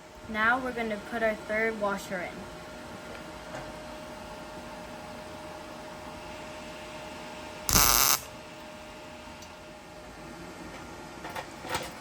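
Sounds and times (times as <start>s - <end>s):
faint steady hum: 0.0s - 10.5s
welding arc crackling: 7.7s - 8.3s.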